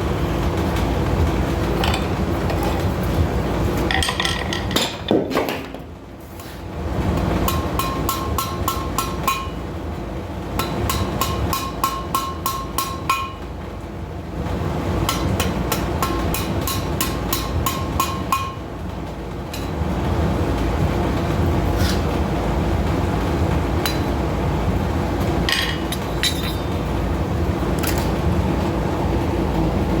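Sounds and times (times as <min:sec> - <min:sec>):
hammer ringing on anvil: 0:07.5 - 0:09.6, 0:10.6 - 0:13.4.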